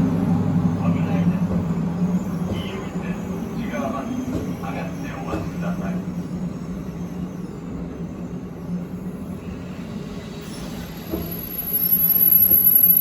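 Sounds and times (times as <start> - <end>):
electric train running hum: 0.0 - 13.0
high-pitched squeal: 10.2 - 13.0.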